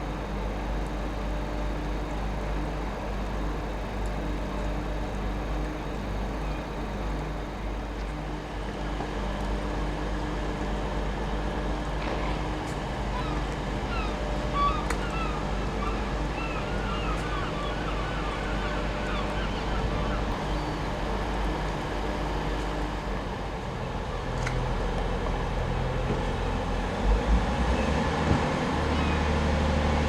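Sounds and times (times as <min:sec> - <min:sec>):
birds chirping: 0:13.1 - 0:20.9.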